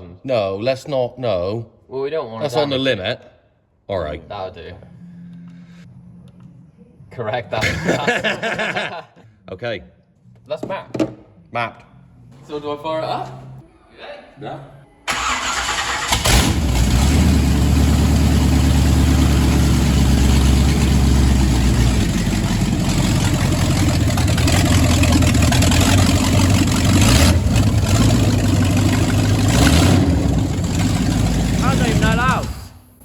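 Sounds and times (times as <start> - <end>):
car engine starting and running: 15.1 - 33.0.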